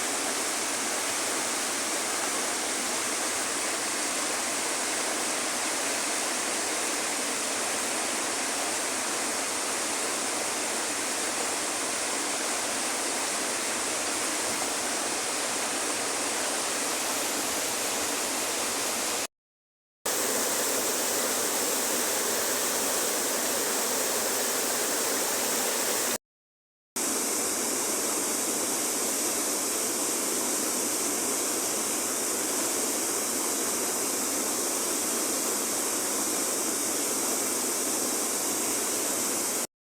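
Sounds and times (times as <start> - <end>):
river water rushing: 0.0 - 19.3, 20.1 - 26.2.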